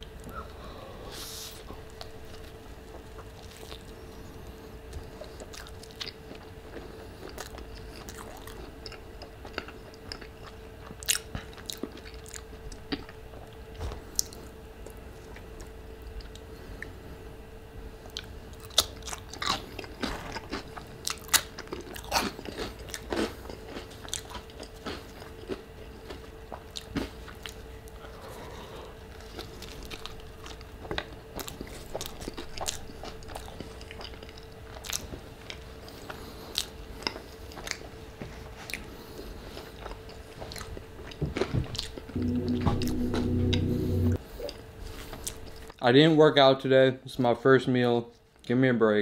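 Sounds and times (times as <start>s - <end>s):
person biting and chewing: 18.7s - 27.5s.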